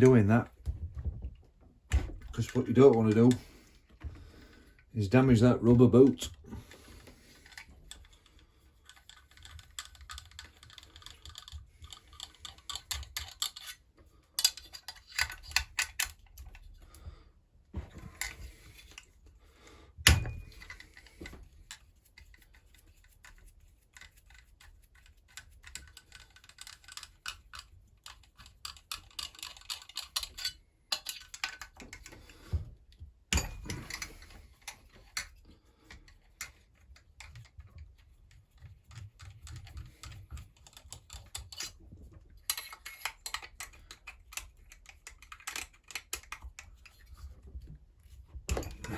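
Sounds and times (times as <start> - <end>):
metal tools clicking and clinking: 8.8 - 13.8, 14.4 - 16.6, 20.1 - 21.8, 25.3 - 32.2, 33.3 - 35.3, 42.4 - 47.0, 48.5 - 48.9.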